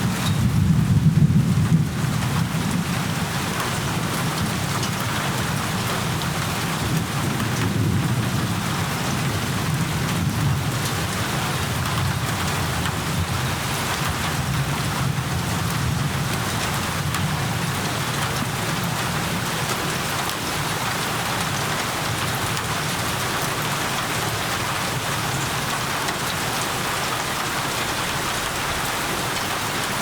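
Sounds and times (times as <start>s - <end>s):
low rumble of thunder: 0.0s - 20.9s
steady rain falling: 0.0s - 30.0s.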